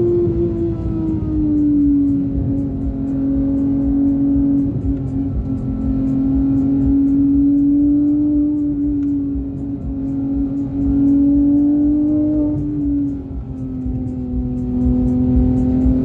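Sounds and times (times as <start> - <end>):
car engine at high revs: 0.0 - 16.0.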